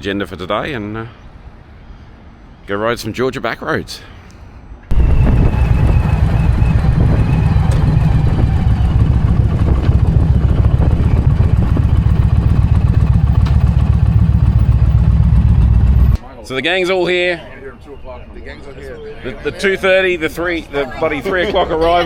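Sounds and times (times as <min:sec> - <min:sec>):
motorcycle engine rumbling: 0:04.9 - 0:16.2.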